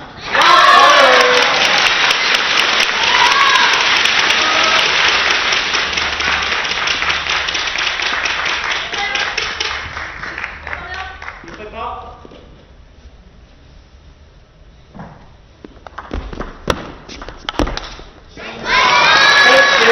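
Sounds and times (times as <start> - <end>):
crowd applauding: 0.2 - 11.6, 18.5 - 19.9.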